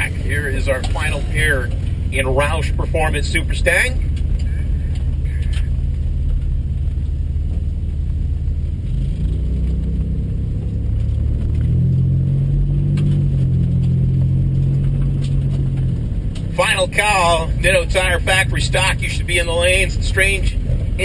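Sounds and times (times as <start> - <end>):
racing car engines running: 0.0 - 21.0.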